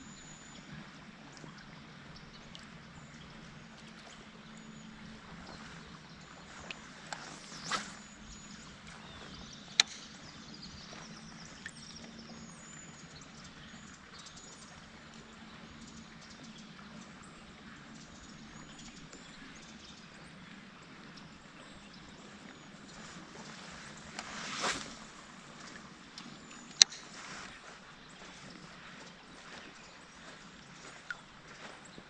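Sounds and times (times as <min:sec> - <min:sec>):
small tick: 0:02.5 - 0:02.7, 0:06.6 - 0:07.8, 0:09.7 - 0:10.2, 0:26.1 - 0:27.1.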